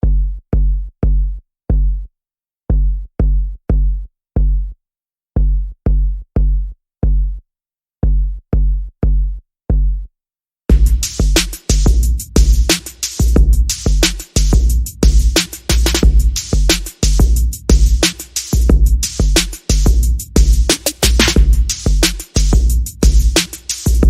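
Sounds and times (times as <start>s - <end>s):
drum machine bass drum hits: 2.7s - 4.6s, 10.7s - 24.0s.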